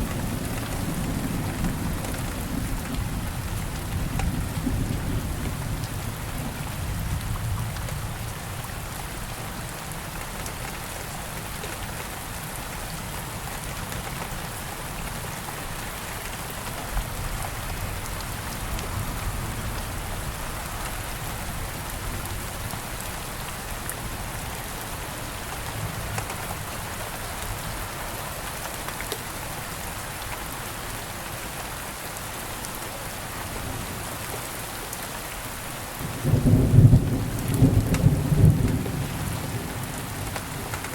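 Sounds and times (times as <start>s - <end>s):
rain falling: 0.0s - 40.9s
thunder rumble: 36.0s - 40.9s.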